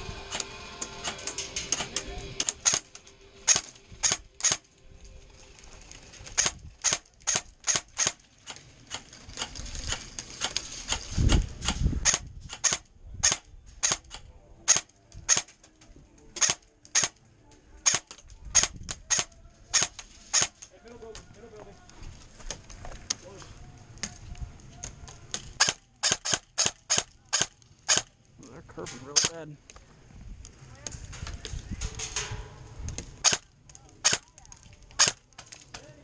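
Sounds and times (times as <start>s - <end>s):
airsoft gun shots: 11.6s - 14.1s, 16.4s - 17.2s, 17.8s - 20.6s, 25.6s - 28.1s, 33.2s - 33.4s, 34.0s - 34.2s, 35.0s - 35.2s.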